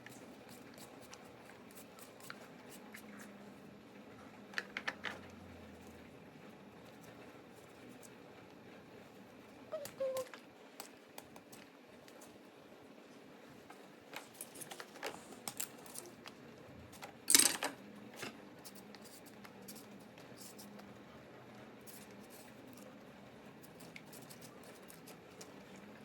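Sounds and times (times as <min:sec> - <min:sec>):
objects clicking and clinking: 0:17.3 - 0:17.8.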